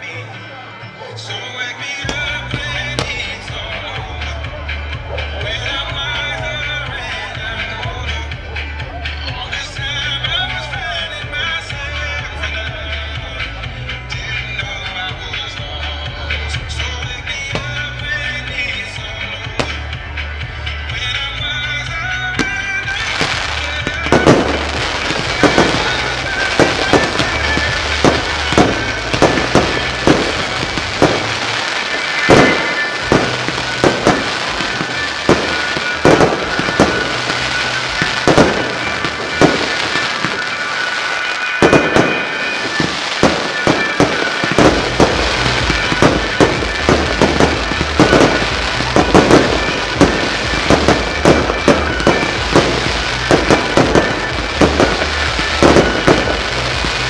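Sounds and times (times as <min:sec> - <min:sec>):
music: 0:00.0 - 0:57.0
fireworks bursting: 0:02.0 - 0:08.0, 0:14.2 - 0:20.7, 0:22.1 - 0:57.0.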